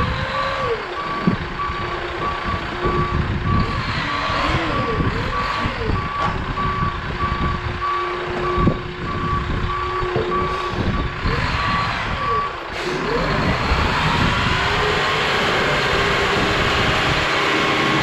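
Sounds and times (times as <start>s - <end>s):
diesel engine and hydraulics: 0.0s - 18.0s
backup alarm beeping: 0.6s - 4.0s, 4.8s - 12.6s.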